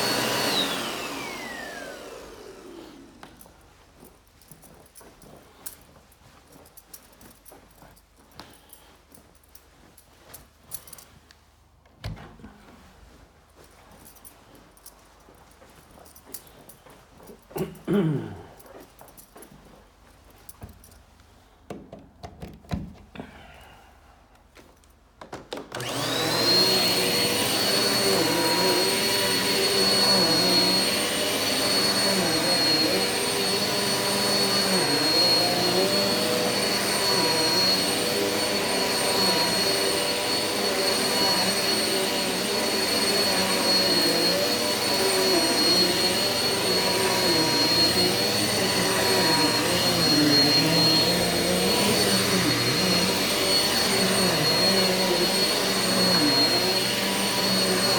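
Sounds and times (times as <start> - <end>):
vacuum cleaner running: 0.0 - 3.6, 25.7 - 57.9.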